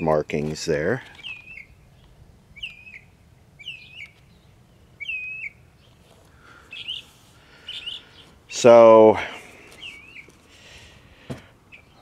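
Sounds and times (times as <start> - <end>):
bird chirping: 1.0 - 8.7, 9.4 - 10.8, 11.6 - 12.0.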